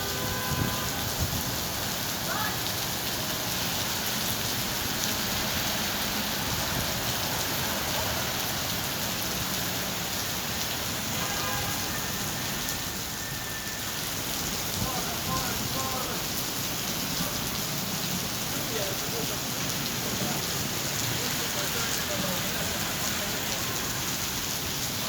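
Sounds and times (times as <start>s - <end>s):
rain falling on street: 0.0s - 25.0s.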